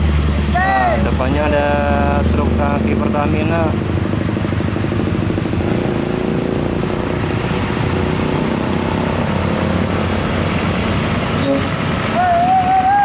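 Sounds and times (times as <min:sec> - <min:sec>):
traffic noise: 0:00.0 - 0:13.0
truck diesel engine running: 0:00.0 - 0:13.0.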